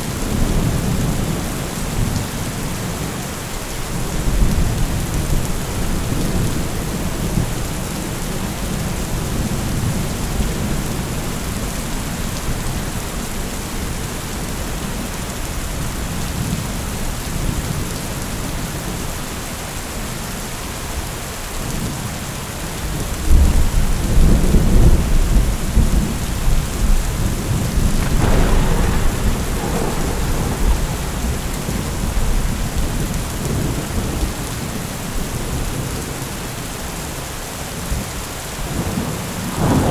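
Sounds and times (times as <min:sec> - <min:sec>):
heavy rain falling: 0:00.0 - 0:39.9
rumbling thunder: 0:23.3 - 0:36.0, 0:38.6 - 0:39.9
sharp thunder crack: 0:27.2 - 0:34.4, 0:39.4 - 0:39.9.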